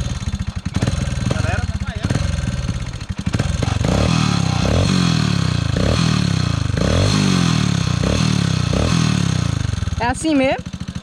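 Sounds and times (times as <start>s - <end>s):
dirt bike engine throttle blips: 0.0s - 11.0s.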